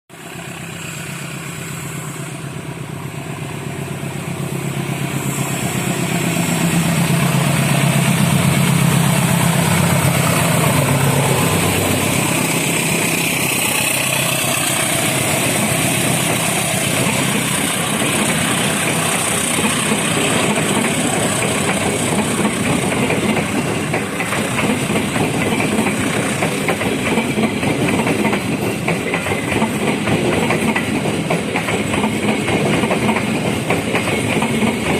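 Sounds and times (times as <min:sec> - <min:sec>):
diesel locomotive engine hum: 0:00.1 - 0:34.9
train wheels clattering over rail joints: 0:07.0 - 0:34.9.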